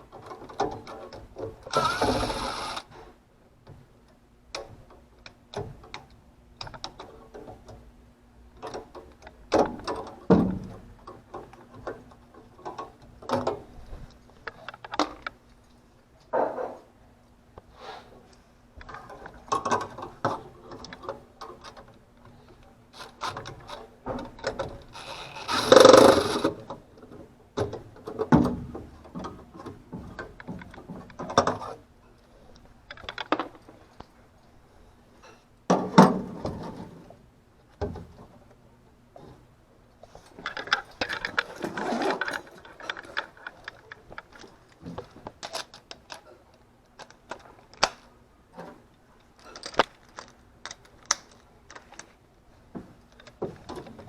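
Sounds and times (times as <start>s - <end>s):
faint steady hum: 0.0s - 7.0s, 16.9s - 27.6s
clattering bursts: 1.7s - 2.8s, 25.0s - 26.6s.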